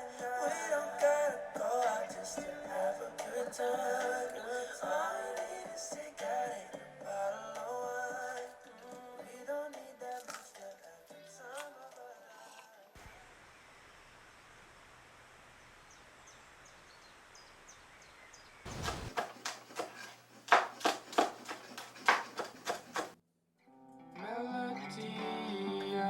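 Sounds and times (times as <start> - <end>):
guitar music: 23.7 - 26.0.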